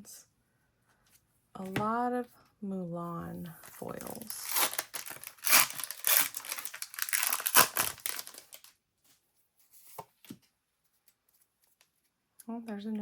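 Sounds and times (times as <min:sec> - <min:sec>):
foil wrapper crinkling and tearing: 0:03.7 - 0:08.8.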